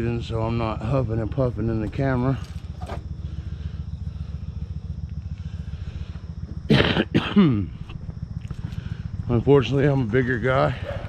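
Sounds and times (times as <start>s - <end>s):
motorcycle engine idling: 0.0s - 11.0s
man coughing and clearing throat: 6.7s - 7.8s.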